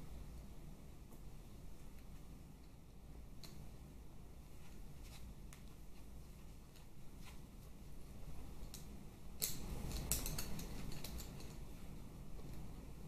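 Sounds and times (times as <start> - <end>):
hand tools and metal parts clinking: 9.4 - 11.7.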